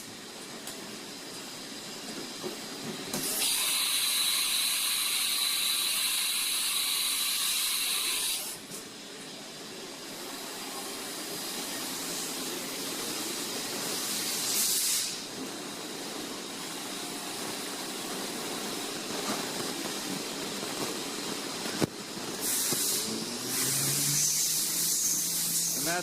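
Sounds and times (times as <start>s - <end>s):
loud high hiss: 3.1s - 8.7s, 10.1s - 15.4s, 16.4s - 26.0s.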